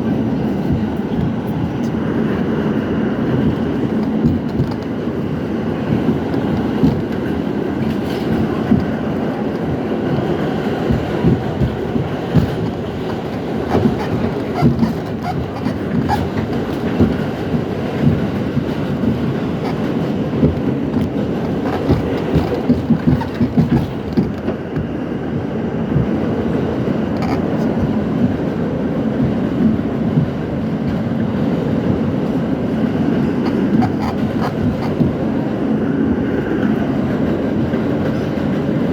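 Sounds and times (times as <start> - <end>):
subway train rumble: 0.0 - 38.9
wheels clacking over rail joints: 0.0 - 38.9.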